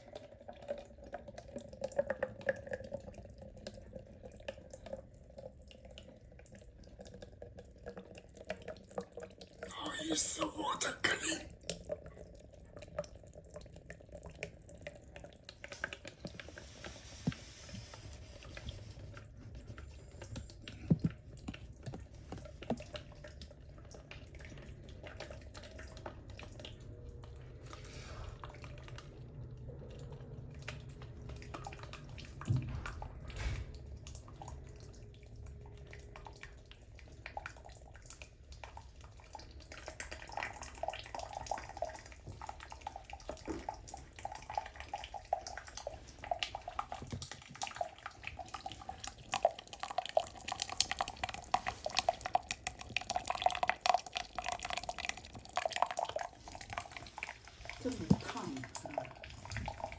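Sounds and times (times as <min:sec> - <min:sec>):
water dripping and trickling: 0:00.0 - 0:09.7, 0:10.6 - 0:59.9.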